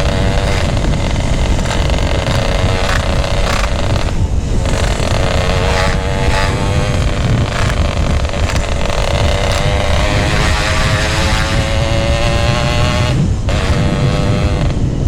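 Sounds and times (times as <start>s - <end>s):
motorcycle engine riding: 0.0s - 15.0s
wind buffeting microphone: 0.0s - 15.0s.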